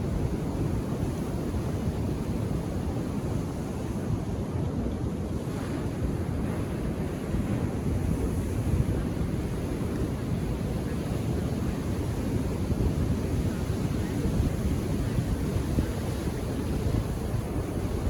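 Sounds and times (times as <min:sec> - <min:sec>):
wind on microphone: 0:00.0 - 0:18.0
waves breaking on beach: 0:05.2 - 0:18.0.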